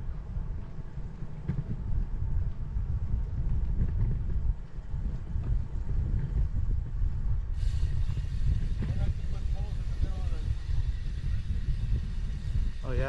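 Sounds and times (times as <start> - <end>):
wind buffeting microphone: 0.0 - 13.0
steady hiss: 7.5 - 13.0.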